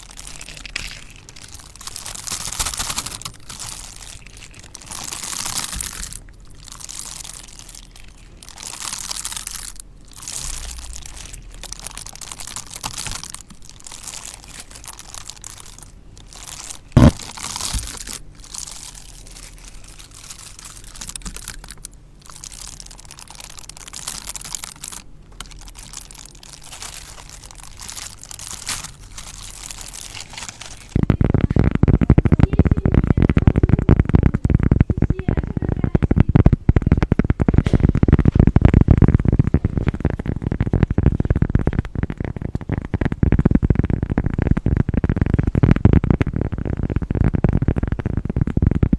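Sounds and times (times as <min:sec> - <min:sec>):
dense stone grinding: 0:00.0 - 0:35.3.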